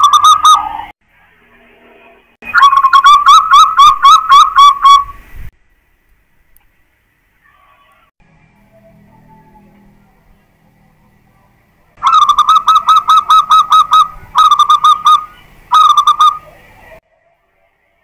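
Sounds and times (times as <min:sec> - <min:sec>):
zebra dove cooing: 0:12.0 - 0:17.0.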